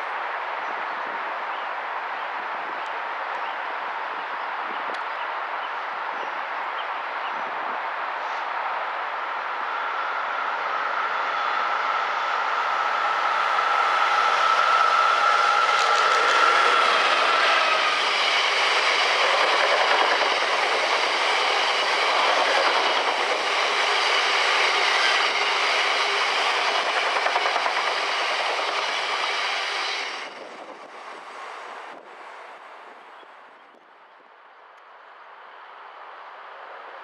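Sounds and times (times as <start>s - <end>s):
diesel locomotive whine: 0.0s - 33.2s
train wheels clickety-clack: 13.8s - 31.0s.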